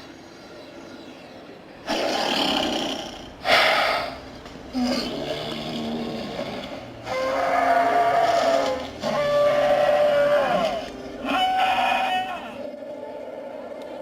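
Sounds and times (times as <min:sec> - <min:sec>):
processed animal-like roars: 0:04.7 - 0:13.8.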